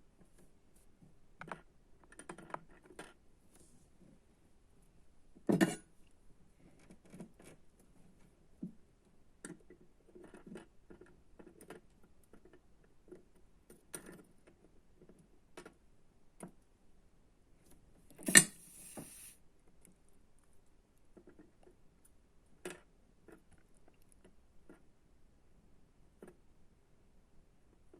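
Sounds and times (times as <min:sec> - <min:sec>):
short hiss: 0:18.2 - 0:19.4.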